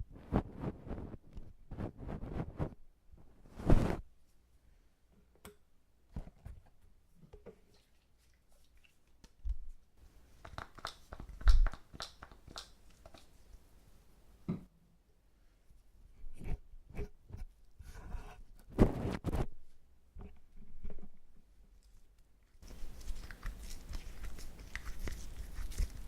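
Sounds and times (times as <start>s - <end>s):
ear tools crackling and scraping: 0.0s - 2.8s, 3.4s - 4.1s.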